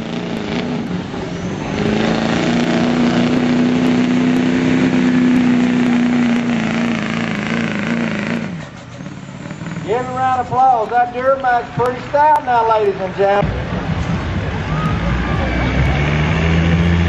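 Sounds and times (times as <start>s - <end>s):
diesel truck engine droning: 0.0s - 17.0s.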